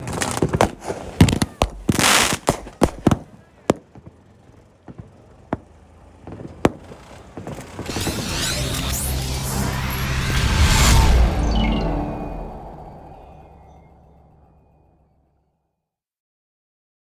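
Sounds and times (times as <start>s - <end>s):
fireworks hissing burst: 0.0s - 4.0s
fireworks banging: 0.0s - 9.1s.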